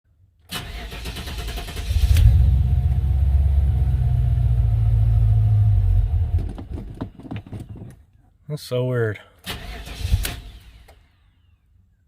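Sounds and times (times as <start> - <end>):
car engine cranking and running: 0.5 - 7.7, 9.4 - 11.2.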